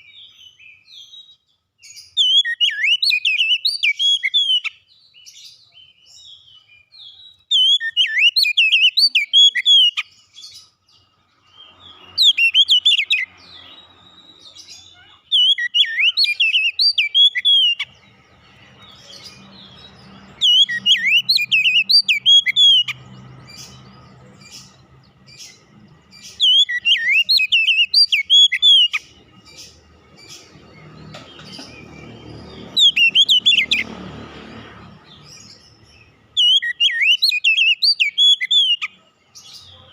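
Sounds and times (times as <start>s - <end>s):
bird singing whistled phrases: 2.1s - 4.8s, 6.1s - 10.2s, 11.9s - 13.3s, 14.1s - 17.9s, 20.4s - 23.0s, 26.2s - 29.0s, 32.6s - 33.8s, 36.4s - 38.9s.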